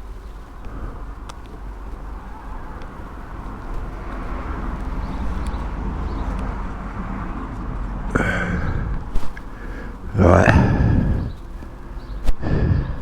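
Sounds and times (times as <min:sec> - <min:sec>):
wind rumble on microphones: 0:00.0 - 0:13.0.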